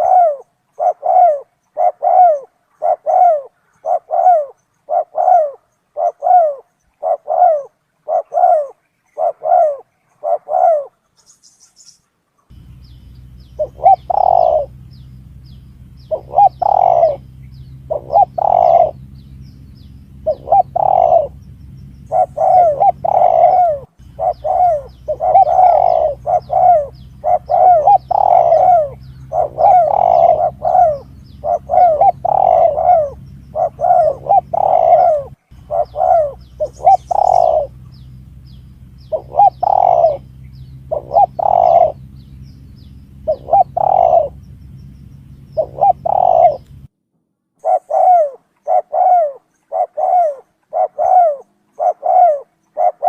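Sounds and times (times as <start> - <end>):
doves cooing: 0.0 - 11.4, 12.5 - 46.9, 47.6 - 53.0
steady low hum: 12.4 - 47.0.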